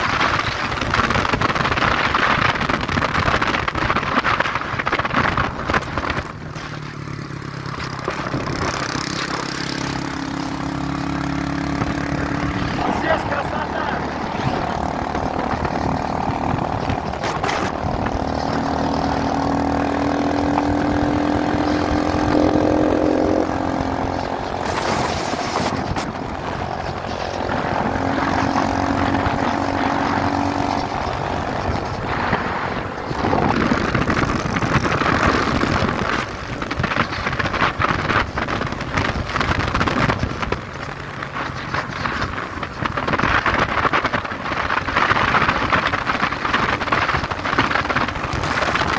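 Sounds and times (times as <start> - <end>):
motorcycle engine running: 0.0 - 48.9
wind rushing over microphone: 0.0 - 48.9.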